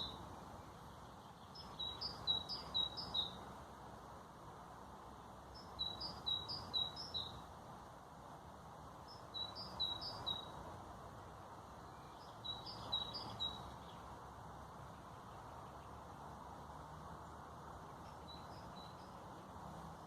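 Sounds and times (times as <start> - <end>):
songbird singing: 0.0 - 4.2, 5.0 - 8.0, 8.9 - 20.0
background hiss: 0.0 - 20.0.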